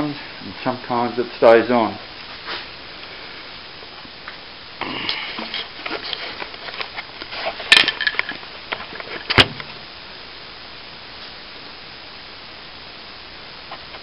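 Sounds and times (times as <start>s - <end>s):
debris rattling and scraping: 5.4s - 9.4s.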